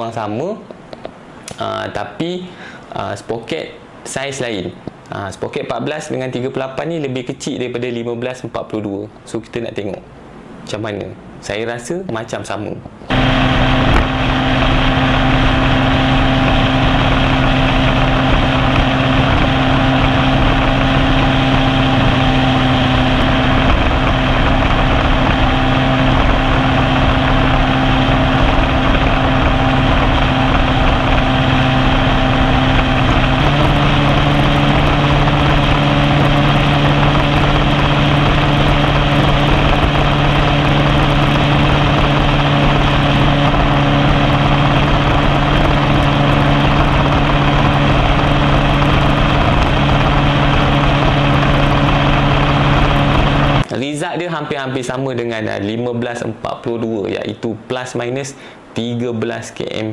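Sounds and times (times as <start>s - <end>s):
wind noise: 13.0s - 53.6s
motorcycle engine running hard: 13.1s - 53.6s.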